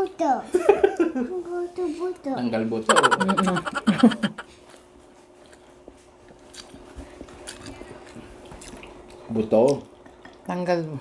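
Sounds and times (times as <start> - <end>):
person speaking: 2.9 - 4.4
people chewing crispy food: 3.1 - 10.5.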